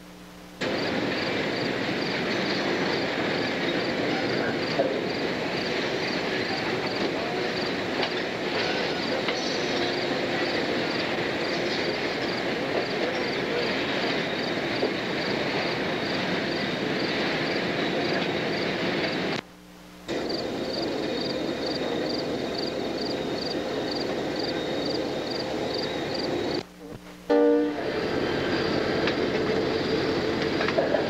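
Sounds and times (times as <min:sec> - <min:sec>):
train wheels rumbling on rails: 0:00.6 - 0:19.4, 0:20.1 - 0:31.0.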